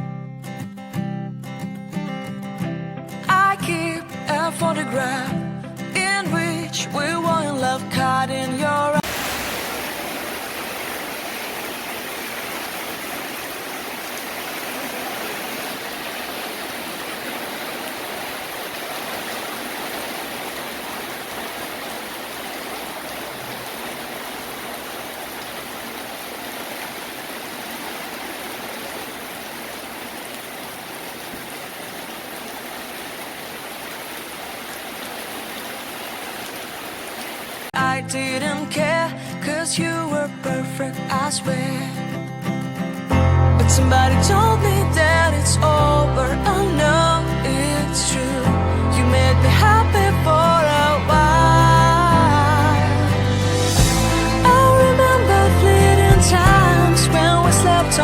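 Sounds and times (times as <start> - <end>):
heavy rain pouring: 9.0 - 37.7.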